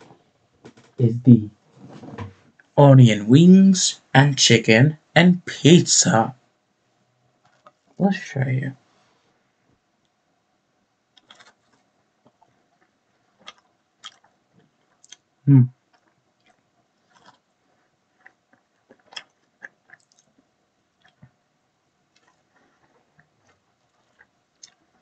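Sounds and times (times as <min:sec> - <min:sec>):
person chewing crunchy food: 0:07.4 - 0:07.8, 0:11.2 - 0:21.4, 0:22.0 - 0:25.0.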